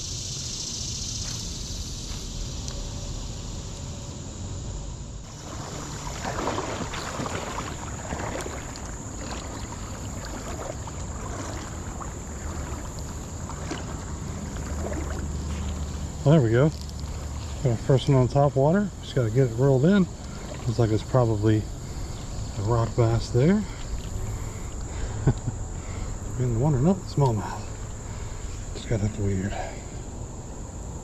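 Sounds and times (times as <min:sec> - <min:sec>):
creek water flowing: 0:01.2 - 0:31.0
splashing and crackling: 0:05.2 - 0:18.4.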